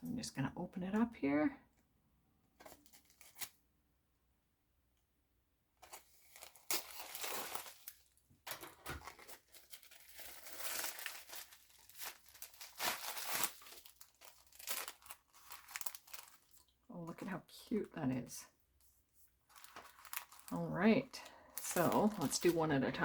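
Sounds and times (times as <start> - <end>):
packaging crinkling and tearing: 2.6 - 3.6, 5.8 - 16.8, 19.4 - 23.0.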